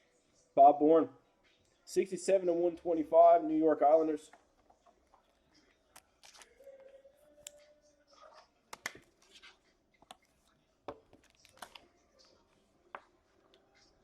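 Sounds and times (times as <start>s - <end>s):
cards rustling and sliding: 6.0s - 6.6s.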